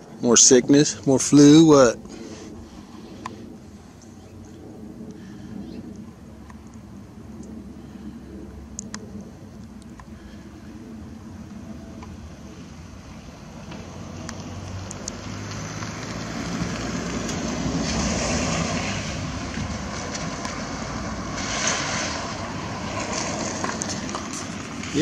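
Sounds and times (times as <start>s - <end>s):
distant jet airliner roar: 0.0s - 25.0s.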